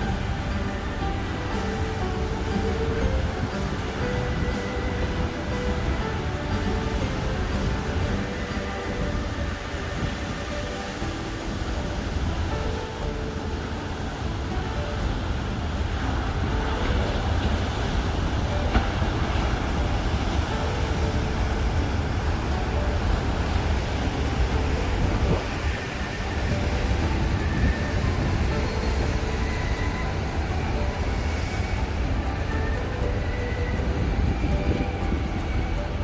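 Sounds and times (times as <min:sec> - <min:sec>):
waves breaking: 0:00.0 - 0:36.0.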